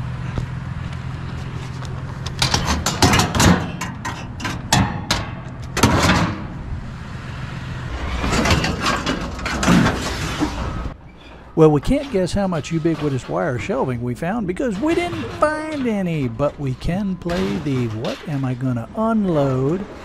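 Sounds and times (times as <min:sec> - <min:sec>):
truck engine running: 0:00.0 - 0:20.0
clattering knocks and clicks: 0:00.3 - 0:06.6, 0:08.0 - 0:11.4.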